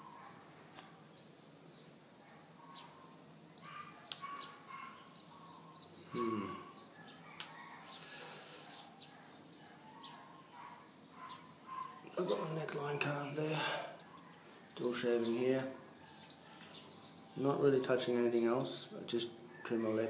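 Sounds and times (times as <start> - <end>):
birds chirping faintly: 0.0 - 20.0
sharp clicks: 4.1 - 4.4
low hum-like voice: 6.2 - 6.6.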